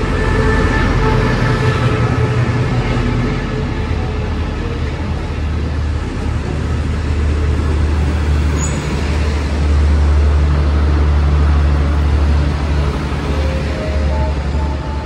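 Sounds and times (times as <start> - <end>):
steel wheels rumbling on rail: 0.0 - 15.0
brief high squeal: 8.6 - 8.9.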